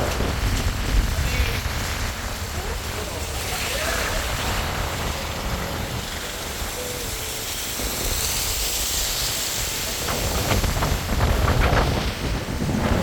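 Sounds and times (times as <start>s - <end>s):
wind noise: 0.0s - 13.0s.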